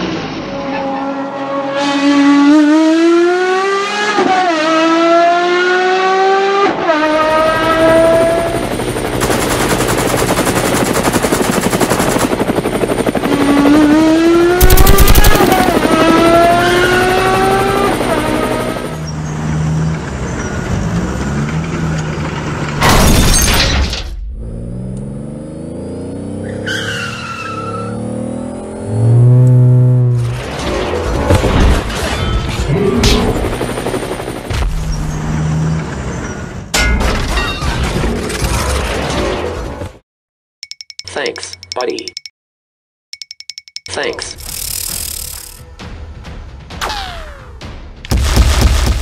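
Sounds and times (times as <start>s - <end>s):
car engine revving hard: 1.4s - 8.5s.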